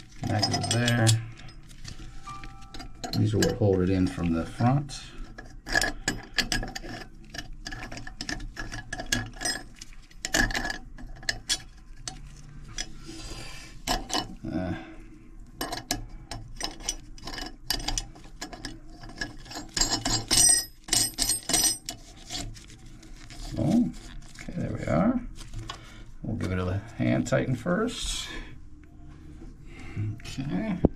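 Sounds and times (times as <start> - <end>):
small metal hardware clinking: 0.2 - 1.7, 2.3 - 4.0, 15.6 - 22.0.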